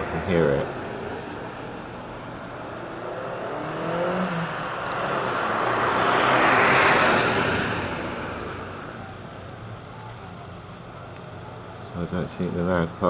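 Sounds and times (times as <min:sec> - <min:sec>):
car passing by: 0:02.4 - 0:09.9.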